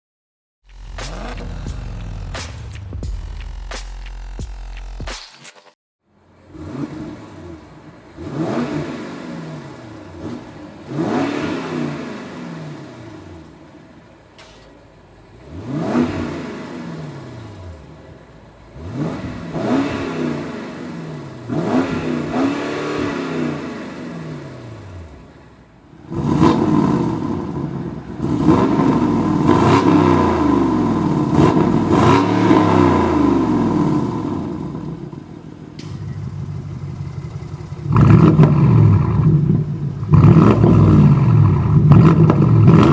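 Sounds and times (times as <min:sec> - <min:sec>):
car engine revving: 0:00.7 - 0:42.9.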